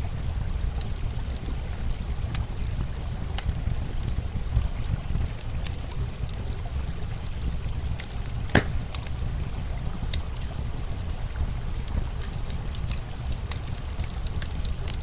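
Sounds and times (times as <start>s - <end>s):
campfire crackling: 0.0s - 15.0s
running water: 5.2s - 15.0s.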